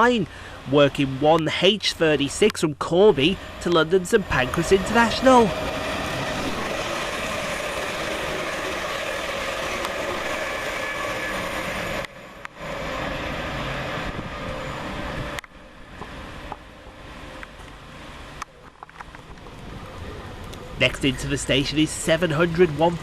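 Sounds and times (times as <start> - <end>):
faint train whine: 0.0 - 23.0
train passing at speed: 3.1 - 18.4.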